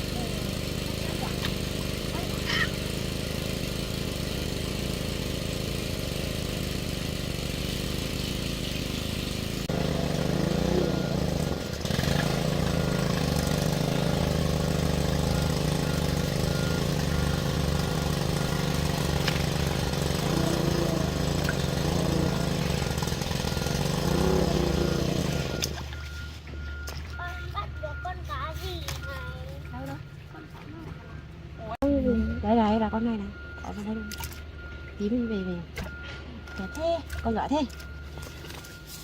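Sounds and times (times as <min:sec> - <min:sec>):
small engine humming: 0:00.0 - 0:27.2.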